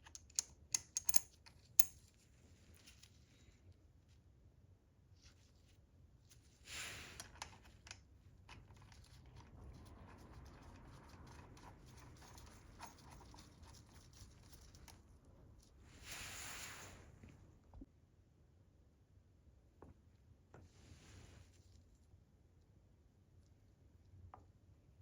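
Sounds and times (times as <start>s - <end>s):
short hisses: 16.0s - 17.1s.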